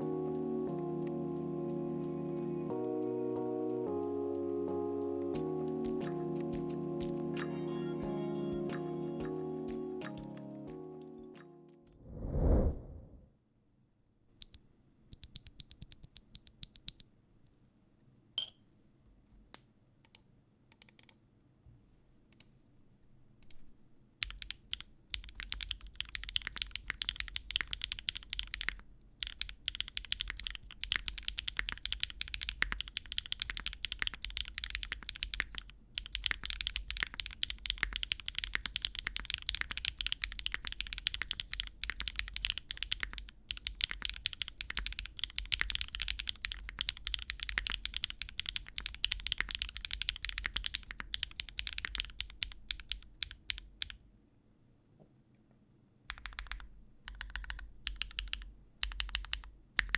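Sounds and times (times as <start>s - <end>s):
mechanical keyboard typing: 15.2s - 17.0s, 20.1s - 21.2s, 24.2s - 54.0s, 56.1s - 59.9s.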